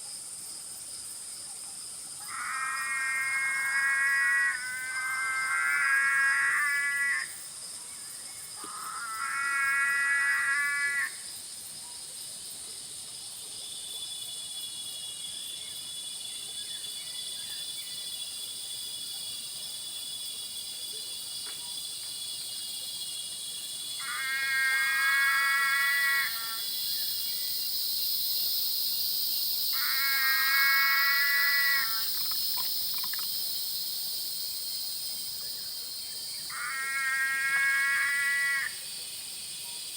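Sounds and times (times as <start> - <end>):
frogs calling: 2.2 - 7.4, 8.6 - 11.2, 23.8 - 35.7, 36.3 - 38.9
high-pitched insect buzz: 23.0 - 39.9.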